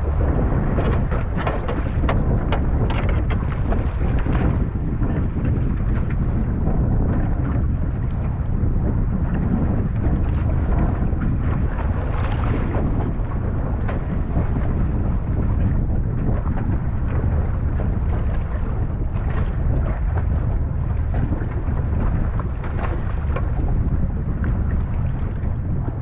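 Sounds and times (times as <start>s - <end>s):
wind buffeting microphone: 0.0s - 26.0s
knocks and clicks: 0.9s - 3.4s.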